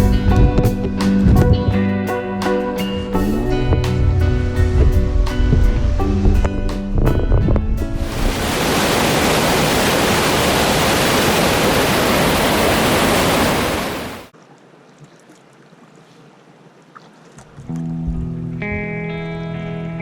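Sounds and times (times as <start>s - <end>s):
faint water sound: 3.1s - 18.0s
waterfall rushing: 8.0s - 14.3s.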